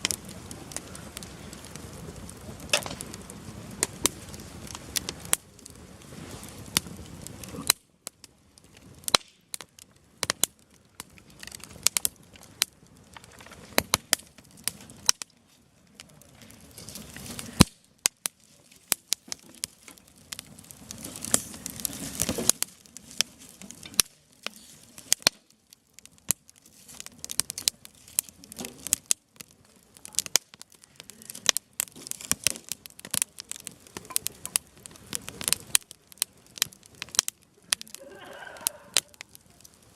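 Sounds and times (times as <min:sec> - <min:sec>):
campfire crackling: 0:00.0 - 0:39.9
wood snapping pops: 0:02.7 - 0:03.1, 0:09.1 - 0:10.5, 0:17.5 - 0:22.7, 0:23.6 - 0:25.5.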